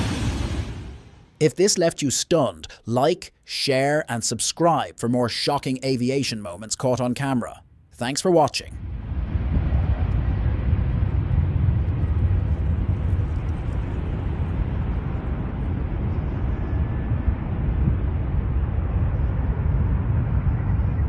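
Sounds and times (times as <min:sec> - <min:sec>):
aircraft engine rumble: 0:08.6 - 0:21.0.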